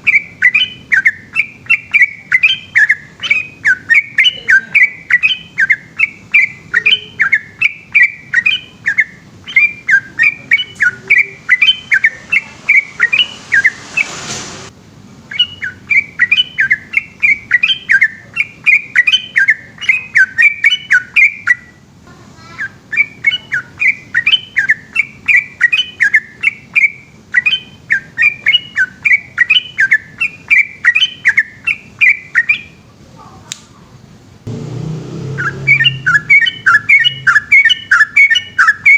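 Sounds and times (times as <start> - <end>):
bulbul rapid chirping song: 0.0 - 14.1, 15.3 - 21.8, 22.4 - 32.8, 35.2 - 38.9
hiss: 12.4 - 14.7.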